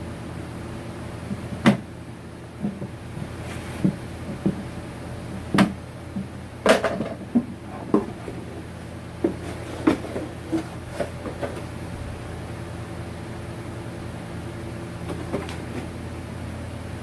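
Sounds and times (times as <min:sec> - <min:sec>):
steady low hum: 0:00.0 - 0:17.0
hard objects knocking and clattering: 0:02.6 - 0:08.5, 0:09.2 - 0:11.7, 0:15.1 - 0:15.9.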